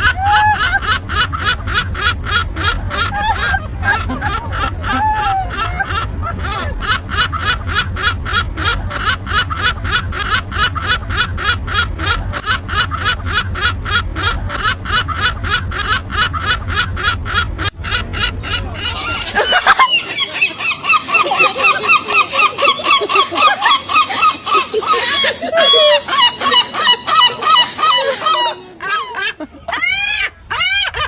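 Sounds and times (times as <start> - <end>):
low rumble: 0.0 - 21.3
gull laughing call: 0.0 - 31.0.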